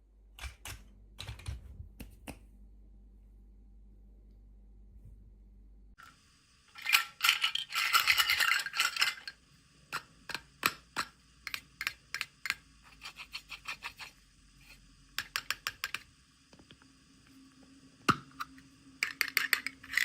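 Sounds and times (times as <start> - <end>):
plastic toy pieces rattling: 6.7 - 9.4, 19.0 - 20.0.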